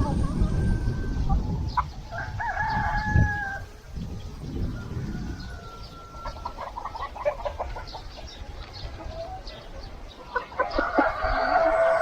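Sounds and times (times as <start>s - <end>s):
rooster crowing: 0.0s - 7.3s, 10.6s - 12.0s
chickens clucking: 0.0s - 12.0s.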